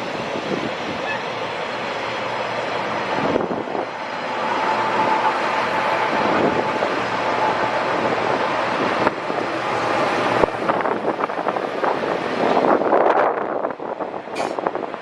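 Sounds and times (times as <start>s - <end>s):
train rushing past: 0.0s - 15.0s.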